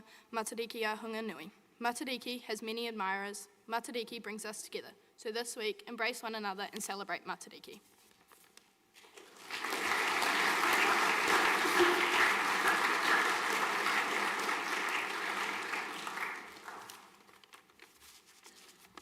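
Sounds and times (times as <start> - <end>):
audience applauding: 9.1 - 17.3.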